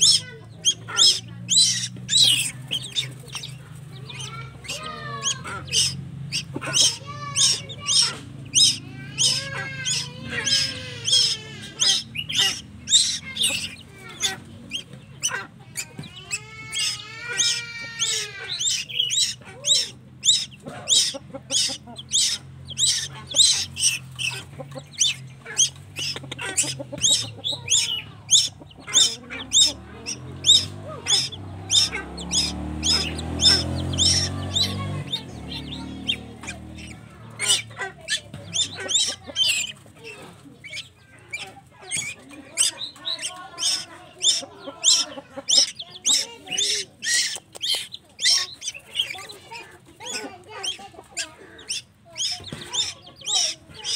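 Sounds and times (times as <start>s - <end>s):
young bird calling: 0.0s - 53.9s.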